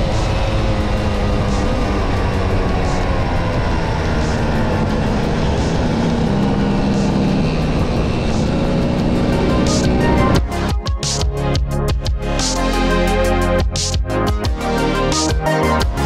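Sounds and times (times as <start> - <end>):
scooter engine running: 0.0 - 10.9
road and wind noise: 0.0 - 15.2.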